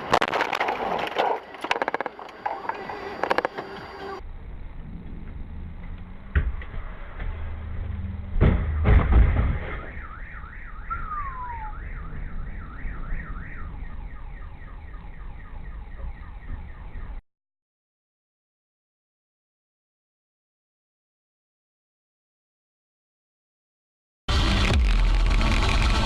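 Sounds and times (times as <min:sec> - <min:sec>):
heavy crash impacts: 0:08.4 - 0:10.0
sharp bang: 0:08.4 - 0:10.1
car alarm wailing: 0:09.7 - 0:17.2.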